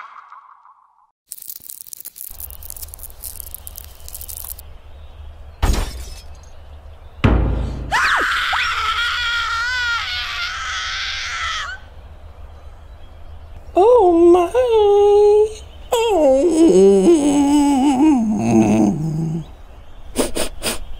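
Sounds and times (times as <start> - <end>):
glass jar smashing: 5.6 - 6.5
cartoon thump: 7.2 - 8.0
high wavering cartoon squeal: 7.9 - 11.8.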